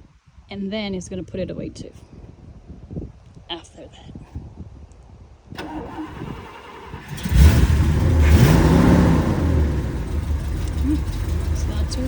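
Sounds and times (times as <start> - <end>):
engine cranking and starting: 5.6 - 12.0
engine rumbling and idling: 5.6 - 12.0.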